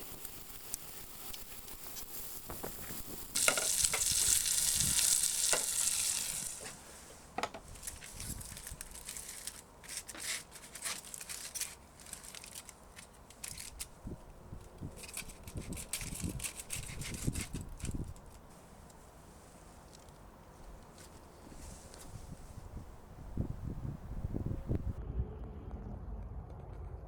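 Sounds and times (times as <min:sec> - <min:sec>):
crackling and spitting fat: 0:00.0 - 0:06.9, 0:07.7 - 0:19.0
steak sizzling on hot iron: 0:00.0 - 0:11.6, 0:14.8 - 0:18.8.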